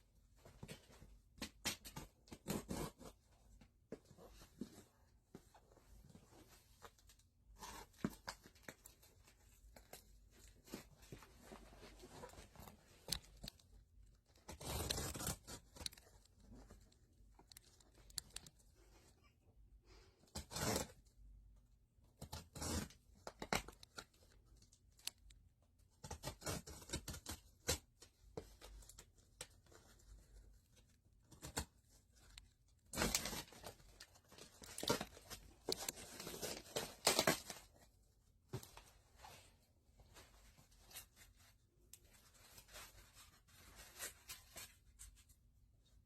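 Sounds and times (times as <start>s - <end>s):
cardboard box being cut and torn: 14.5s - 15.9s, 20.3s - 21.0s.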